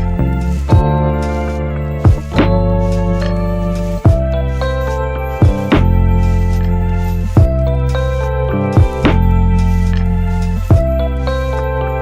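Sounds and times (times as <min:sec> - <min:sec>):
sustained chords over bass: 0:00.0 - 0:12.0
strong beat: 0:00.1 - 0:01.4, 0:02.0 - 0:04.4, 0:05.4 - 0:06.6, 0:07.3 - 0:08.0, 0:08.7 - 0:09.7, 0:10.4 - 0:11.0.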